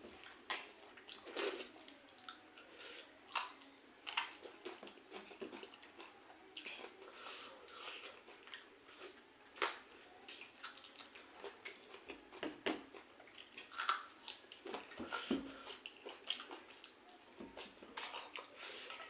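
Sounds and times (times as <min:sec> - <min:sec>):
wet chewing and smacking: 0:03.3 - 0:07.0, 0:07.7 - 0:19.0.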